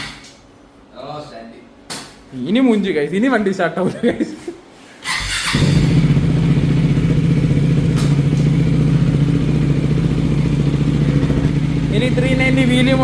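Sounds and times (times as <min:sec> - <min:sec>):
motorcycle engine idling: 0:05.5 - 0:13.0.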